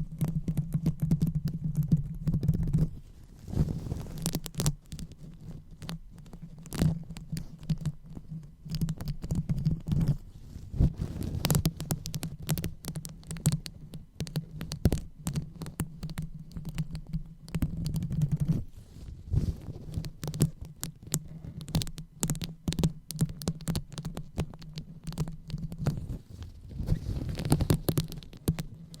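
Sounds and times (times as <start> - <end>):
crackles and taps: 0.0 - 29.0
fingers rubbing a microphone: 0.0 - 29.0.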